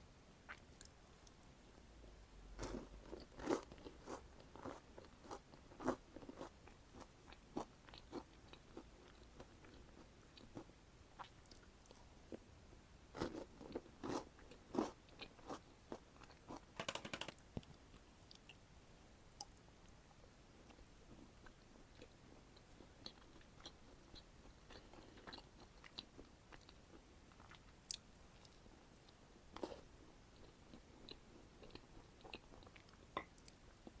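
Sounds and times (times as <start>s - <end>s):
chocolates crunching while chewed: 2.6s - 12.0s.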